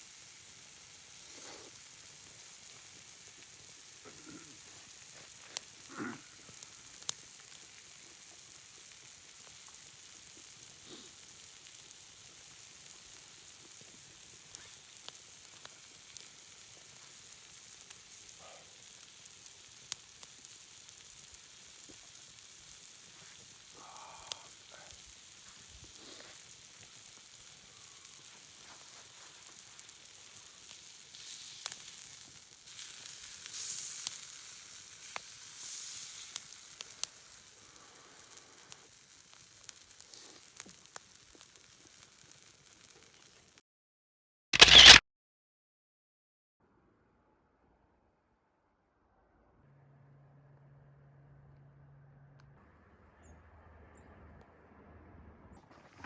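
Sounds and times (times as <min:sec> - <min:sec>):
food sizzling in a frying pan: 0:00.0 - 0:43.6.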